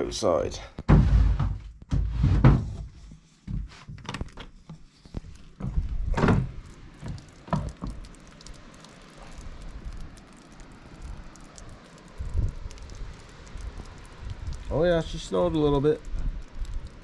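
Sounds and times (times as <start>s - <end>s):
footsteps on wooden floor: 0.8s - 8.0s
wooden door opening: 6.1s - 8.0s
faint wind hiss: 8.1s - 17.0s.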